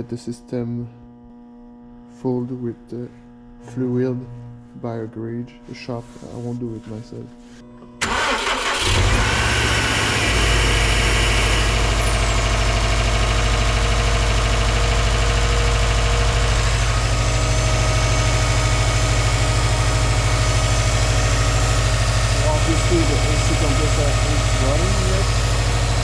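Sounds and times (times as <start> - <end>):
car engine starting and idling: 8.0 - 26.0.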